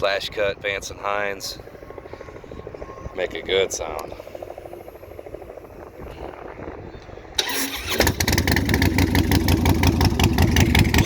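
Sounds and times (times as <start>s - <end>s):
motorcycle engine running: 0.6s - 11.0s
motorcycle starter cranking: 7.4s - 11.0s.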